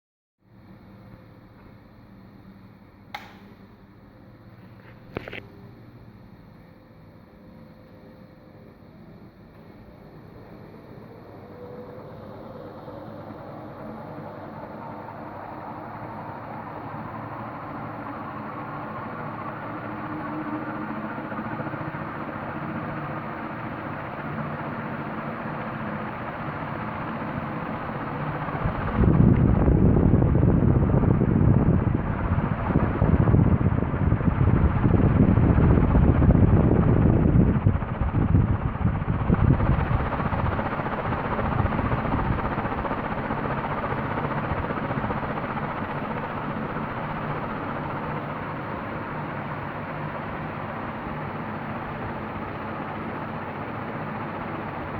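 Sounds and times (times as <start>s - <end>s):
ceiling fan motor hum: 0.4s - 54.9s
rush of moving air: 28.3s - 49.0s
wind buffeting on microphone: 28.5s - 45.2s.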